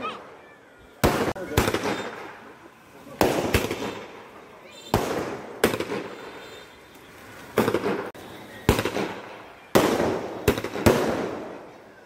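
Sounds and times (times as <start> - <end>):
fireworks banging and crackling: 0.0 - 12.0.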